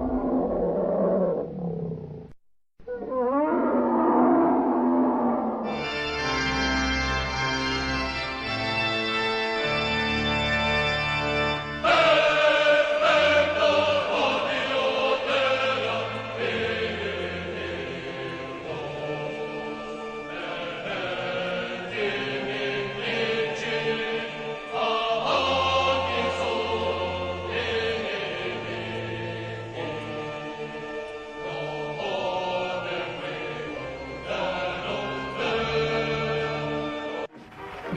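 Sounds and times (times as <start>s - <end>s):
organ chords: 5.7s - 37.9s
choir singing: 11.6s - 37.9s.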